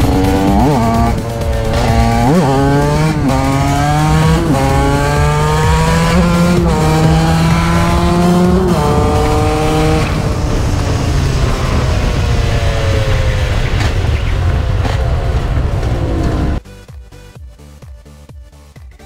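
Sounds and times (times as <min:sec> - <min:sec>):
motorcycle engine at high revs: 0:00.0 - 0:16.6
wind buffeting microphone: 0:06.6 - 0:16.6.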